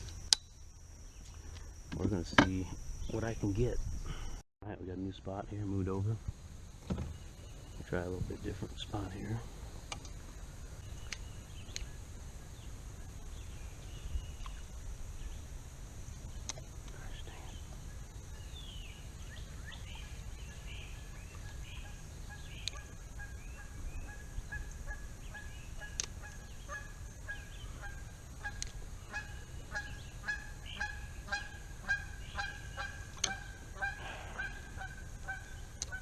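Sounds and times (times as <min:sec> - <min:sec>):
steady low rumble: 0:00.0 - 0:36.0
geese honking: 0:21.5 - 0:36.0.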